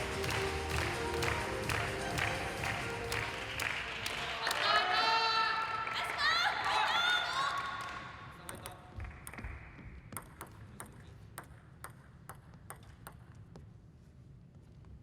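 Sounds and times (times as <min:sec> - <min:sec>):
crowd noise: 0:00.0 - 0:07.1
table tennis ball clicks: 0:10.2 - 0:13.6.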